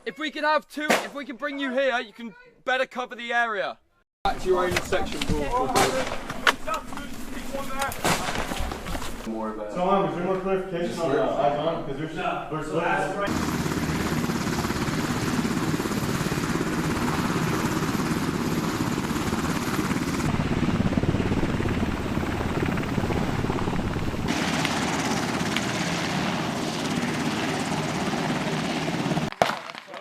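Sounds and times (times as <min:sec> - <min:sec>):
helicopter engine and rotors rumbling: 0:13.3 - 0:29.3.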